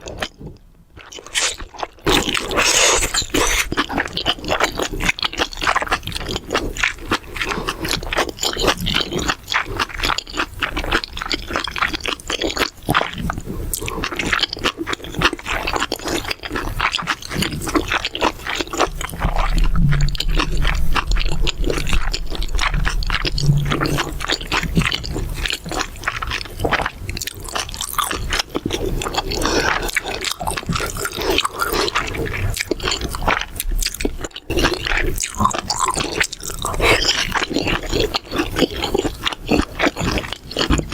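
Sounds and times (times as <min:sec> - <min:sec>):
crunchy chewing: 0:00.0 - 0:40.9
wet mouth sounds: 0:01.0 - 0:40.9
scraping: 0:19.2 - 0:25.6.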